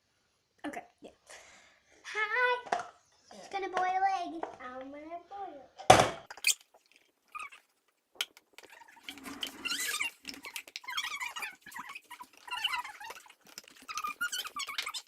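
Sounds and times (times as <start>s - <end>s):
melting ice squeaking and chirping: 6.4s - 7.8s, 8.6s - 15.0s.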